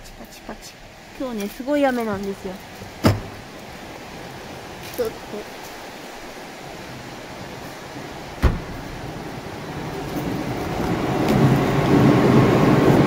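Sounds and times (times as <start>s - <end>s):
sharp knock: 3.0s - 3.3s, 8.4s - 8.7s
electric train passing: 3.4s - 13.0s.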